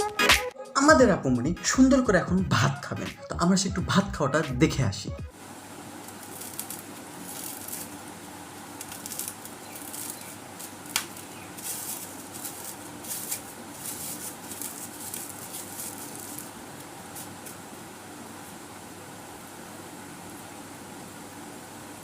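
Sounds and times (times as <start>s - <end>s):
steady hiss: 5.3s - 22.0s.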